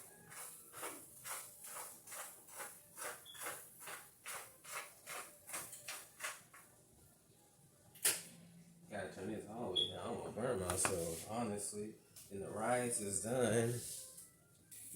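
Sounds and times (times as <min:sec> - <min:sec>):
spatula scraping frying pan: 0:00.0 - 0:06.5.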